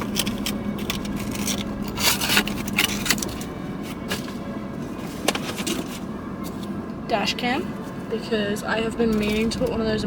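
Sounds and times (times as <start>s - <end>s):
packaging rustling and scraping: 0.0s - 6.8s
steady low hum: 0.0s - 10.0s.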